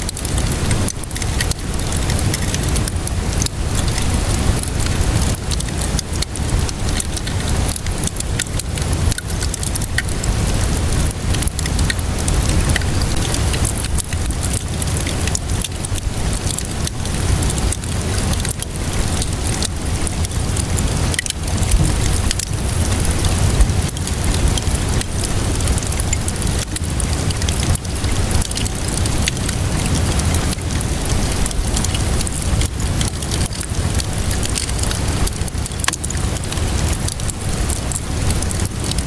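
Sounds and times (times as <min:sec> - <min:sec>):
steady rainfall: 0:00.0 - 0:39.0
wood fire crackling and popping: 0:00.0 - 0:39.0
low rumble: 0:20.4 - 0:24.4.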